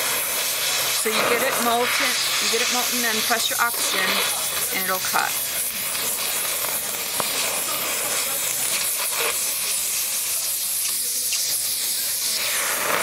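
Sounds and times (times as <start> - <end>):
cutting torch hissing: 0.0 - 13.0.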